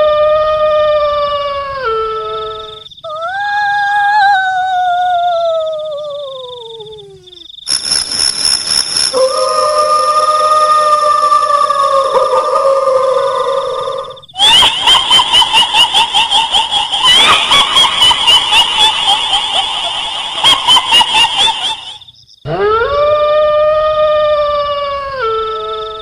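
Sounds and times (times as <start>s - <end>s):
faint high whine: 7.6s - 11.3s
high-pitched cackles: 8.0s - 22.7s
wailing howl: 9.2s - 26.0s.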